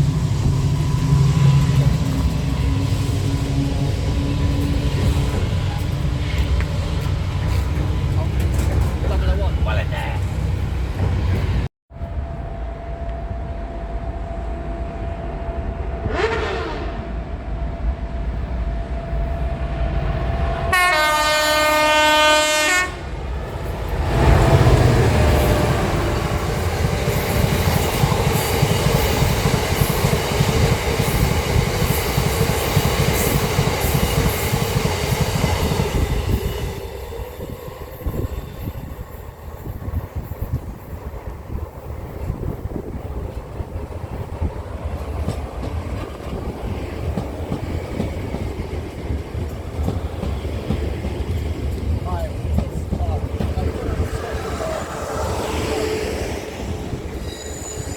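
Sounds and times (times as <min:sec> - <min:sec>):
train passing with wheel clatter: 0:00.0 - 0:57.9
train horn blast: 0:15.2 - 0:17.6, 0:19.9 - 0:23.2.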